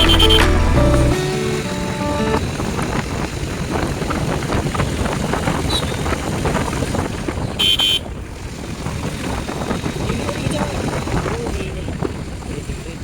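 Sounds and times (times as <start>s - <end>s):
vehicle horn beep: 0.0s - 2.4s, 7.6s - 8.1s
motorcycle engine running: 0.0s - 13.0s
wind buffeting microphone: 2.4s - 13.0s.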